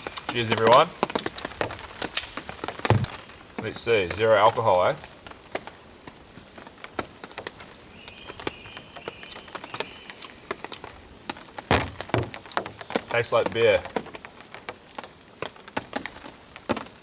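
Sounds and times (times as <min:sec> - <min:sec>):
rain pattering on tent: 0:00.0 - 0:17.0
loud knock: 0:02.9 - 0:03.2.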